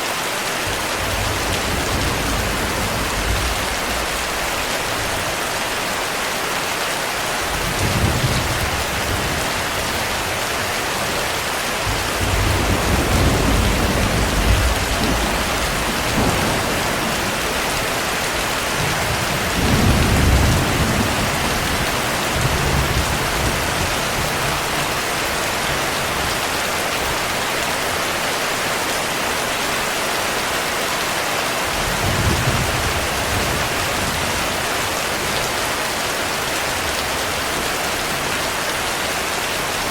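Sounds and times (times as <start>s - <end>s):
heavy rain falling: 0.0s - 39.9s
low thunder rumbling: 0.7s - 5.2s, 11.8s - 24.6s.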